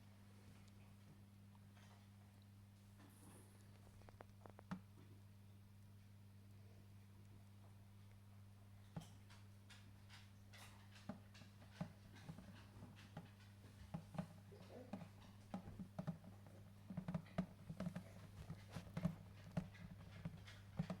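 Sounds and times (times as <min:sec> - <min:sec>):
small clicks and taps: 0:03.0 - 0:05.2, 0:08.8 - 0:21.0.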